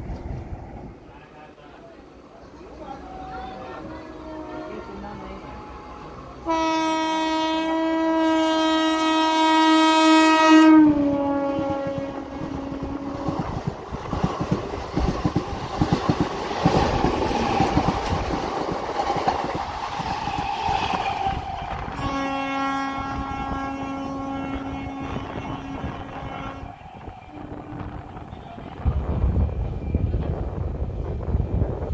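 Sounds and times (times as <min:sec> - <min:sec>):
train horn blast: 0:04.1 - 0:13.5, 0:20.7 - 0:29.0
train wheels clattering past: 0:11.7 - 0:22.3.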